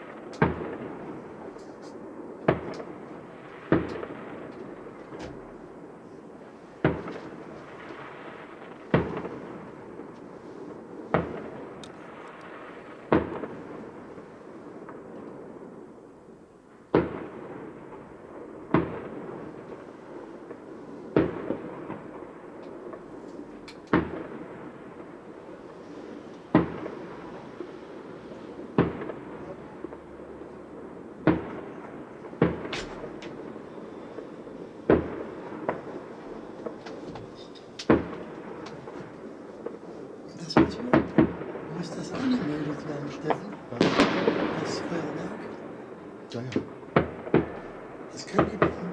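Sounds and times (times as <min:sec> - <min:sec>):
fireworks bursting: 0:00.0 - 0:15.9, 0:16.9 - 0:48.9
steady background noise: 0:17.7 - 0:48.9.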